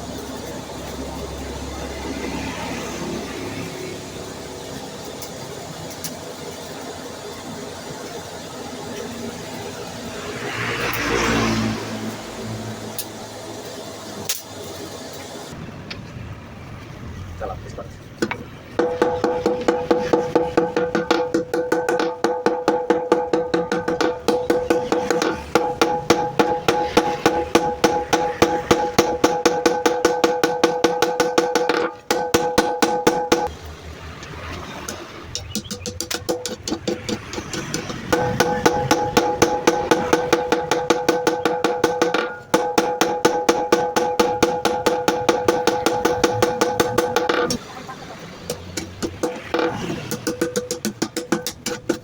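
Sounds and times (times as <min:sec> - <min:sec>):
hammers striking steel on anvil: 0:18.2 - 0:33.5, 0:34.8 - 0:47.6, 0:48.4 - 0:52.0.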